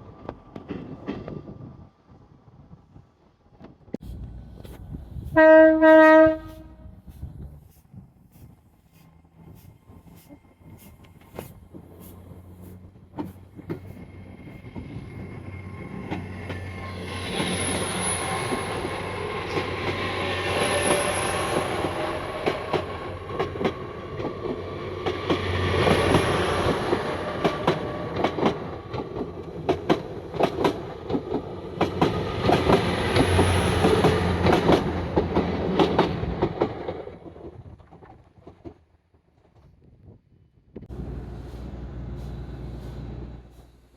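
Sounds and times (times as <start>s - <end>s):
train wheels clattering on rails: 9.4s - 38.8s
high wheel squeal: 14.9s - 22.3s.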